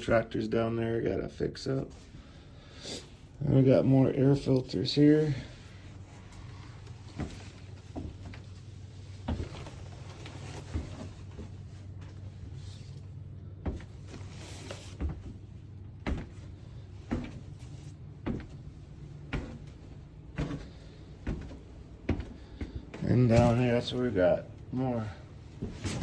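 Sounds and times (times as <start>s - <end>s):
steady low hum: 0.0s - 26.0s
footsteps on hard floor: 6.2s - 11.6s, 13.6s - 24.0s.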